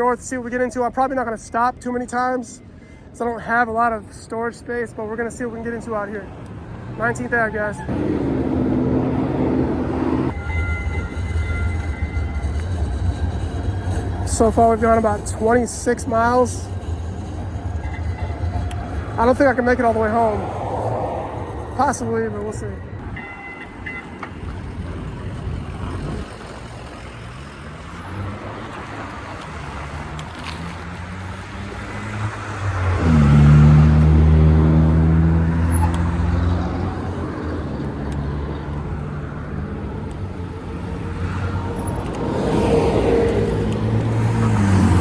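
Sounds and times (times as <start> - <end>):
road traffic: 0.0 - 45.0
motor vehicle engine passing: 6.5 - 22.9, 24.0 - 45.0
wind rush on microphone: 23.0 - 27.0.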